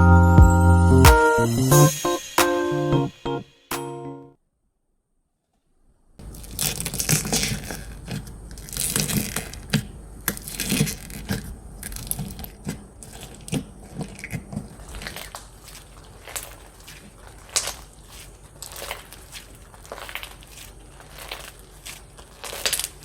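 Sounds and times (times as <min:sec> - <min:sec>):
slime squished by hand: 0:06.2 - 0:23.0.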